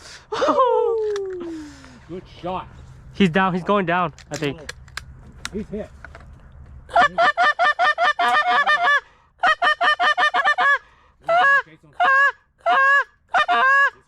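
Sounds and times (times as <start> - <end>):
geese honking: 6.9 - 14.0.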